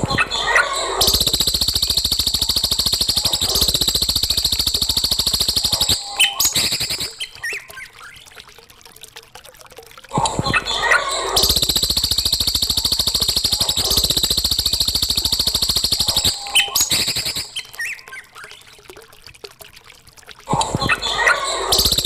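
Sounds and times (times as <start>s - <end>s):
songbird rapid chattering trill: 0.8s - 7.7s, 11.3s - 18.1s.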